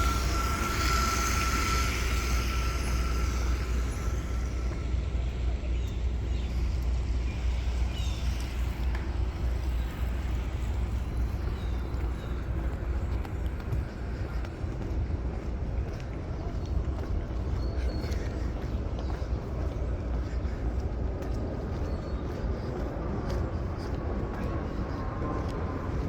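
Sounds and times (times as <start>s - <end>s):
thin steady whine: 0.0s - 16.0s
city traffic rumble: 0.0s - 26.0s.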